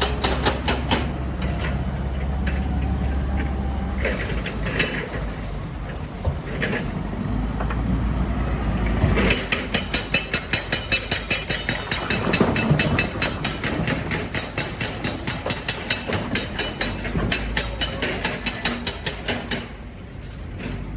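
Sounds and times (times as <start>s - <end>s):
fast clatter of sharp knocks: 0.0s - 1.2s, 9.3s - 19.6s
heavy machinery rumbling: 0.0s - 19.5s.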